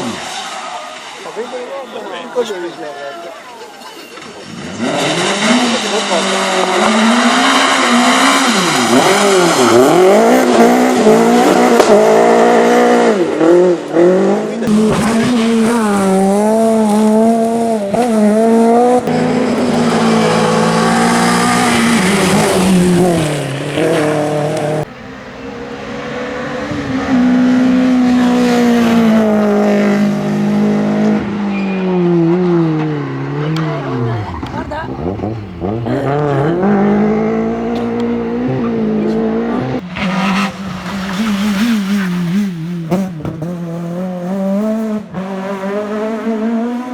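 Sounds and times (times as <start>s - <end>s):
rally car engines revving: 0.0s - 2.8s, 4.1s - 46.9s.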